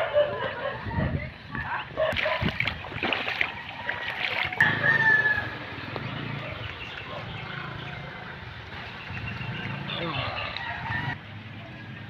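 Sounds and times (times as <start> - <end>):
rooster crowing: 4.6 - 5.7, 10.1 - 11.2.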